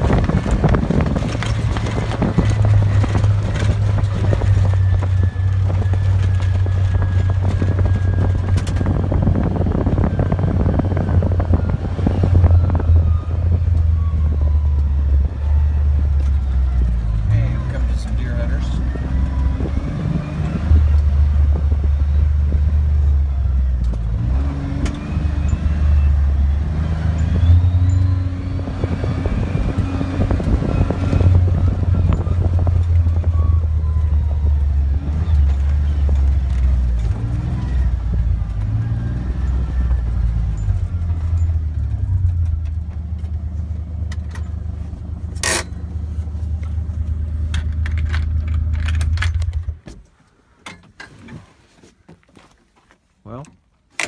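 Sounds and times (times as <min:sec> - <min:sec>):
vehicle clicks and rattles: 0:00.0 - 0:12.9, 0:28.8 - 0:54.0
vehicle engine running: 0:00.0 - 0:49.9.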